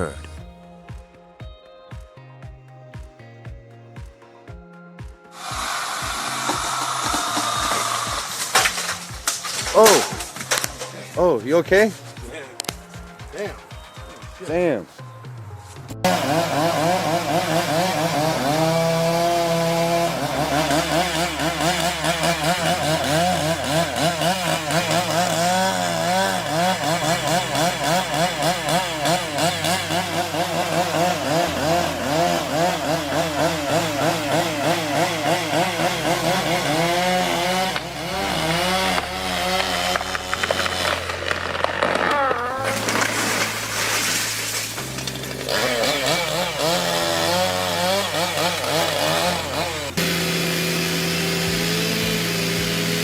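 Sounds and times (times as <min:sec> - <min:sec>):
chainsaw cutting wood: 0:04.0 - 0:14.5, 0:15.8 - 0:53.0.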